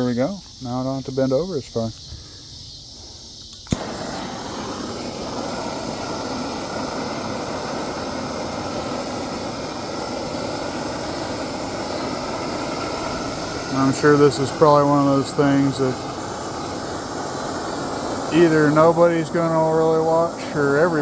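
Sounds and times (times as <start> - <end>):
blowtorch flame hissing: 1.7 - 21.0
blowtorch ignition click: 3.4 - 21.0.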